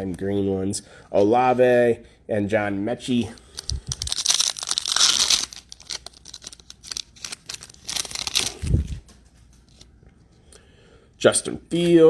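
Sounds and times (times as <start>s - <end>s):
wrapper rustling: 3.4s - 9.9s.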